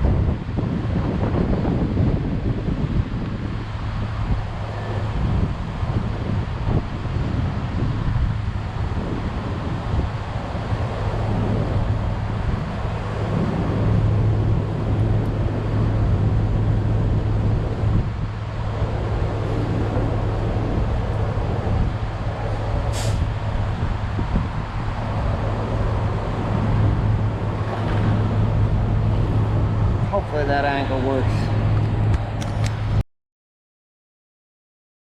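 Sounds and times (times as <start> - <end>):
wind noise: 0.0 - 33.0
short high hiss: 22.9 - 23.3.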